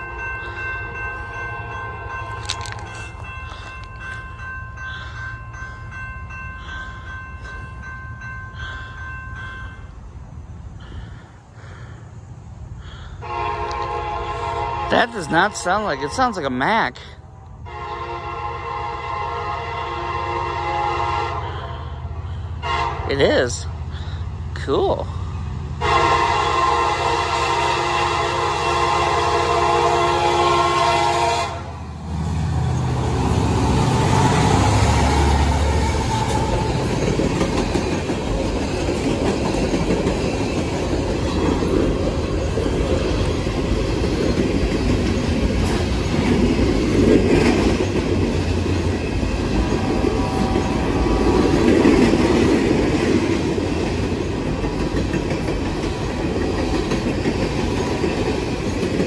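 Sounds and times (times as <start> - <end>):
train horn blast: 13.2 - 16.4, 17.6 - 22.0, 22.6 - 23.3, 25.8 - 31.9, 33.6 - 36.7
train wheels clattering: 33.4 - 59.0.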